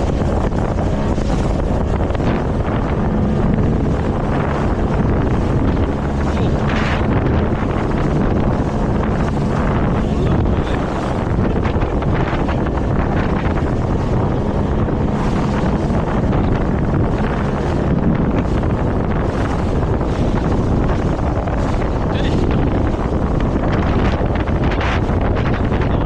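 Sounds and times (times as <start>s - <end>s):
low boat engine hum: 0.0s - 26.0s
water rushing past hull: 0.0s - 26.0s
wind buffeting microphone: 0.0s - 26.0s.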